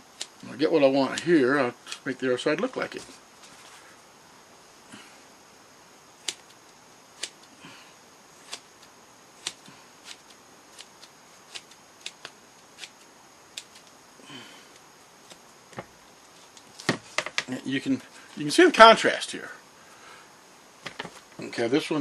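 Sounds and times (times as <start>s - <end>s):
scissors snipping foam: 8.4s - 8.8s, 9.4s - 13.0s.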